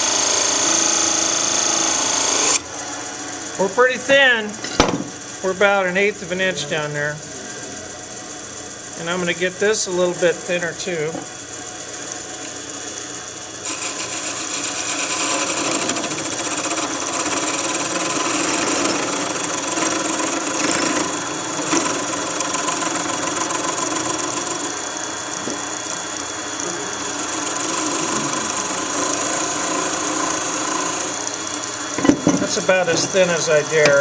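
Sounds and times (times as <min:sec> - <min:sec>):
tool cutting wood hiss: 0:00.0 - 0:02.6, 0:13.6 - 0:34.0
wood lathe hum: 0:00.0 - 0:04.6, 0:05.2 - 0:34.0.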